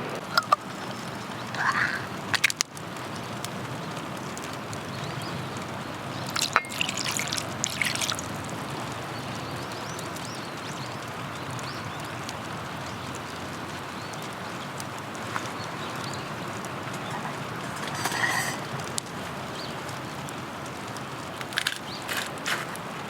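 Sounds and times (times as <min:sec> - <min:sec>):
steady rain hiss: 0:00.0 - 0:23.0
liquid being poured: 0:06.2 - 0:08.4.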